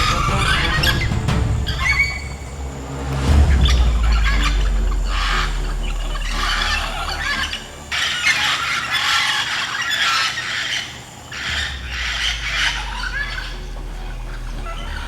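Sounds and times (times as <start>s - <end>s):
parrots screeching and squawking: 6.1s - 13.6s.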